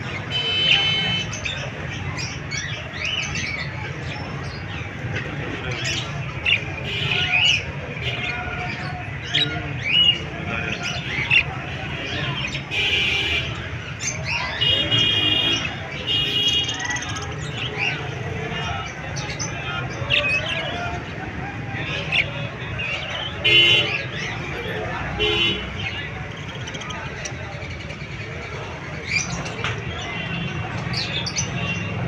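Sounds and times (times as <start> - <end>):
parrots chirping and squawking: 5.7 - 21.2.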